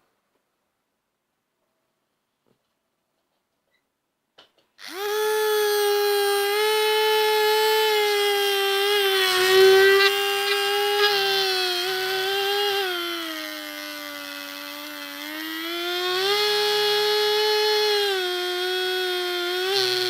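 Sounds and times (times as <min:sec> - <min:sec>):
toy motor high-pitched whine: 0:04.8 - 0:20.0.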